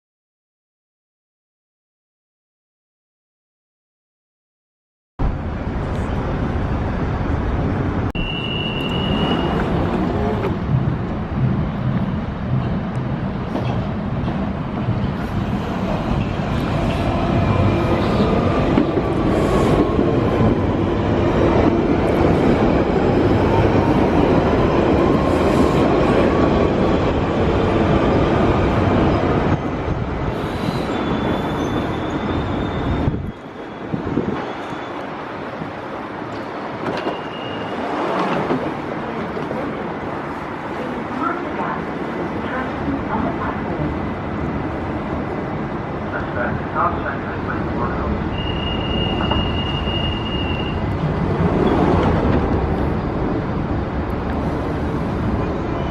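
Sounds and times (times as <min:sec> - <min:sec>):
underground train rumbling: 0:05.2 - 0:55.9
high wheel squeal: 0:08.2 - 0:09.8, 0:30.4 - 0:35.1, 0:37.0 - 0:38.0, 0:48.3 - 0:50.9.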